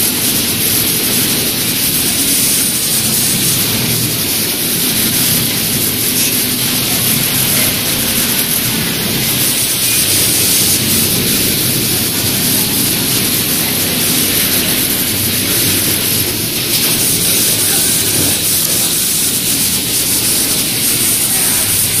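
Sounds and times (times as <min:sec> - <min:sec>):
sewing machine running: 0:00.0 - 0:22.0.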